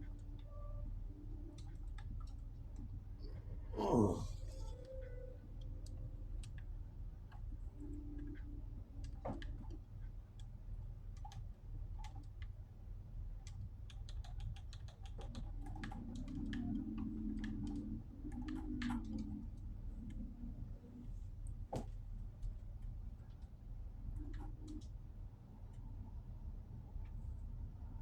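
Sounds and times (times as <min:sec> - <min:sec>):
low hum: 0:00.0 - 0:09.9
light clicks and taps: 0:05.8 - 0:12.6.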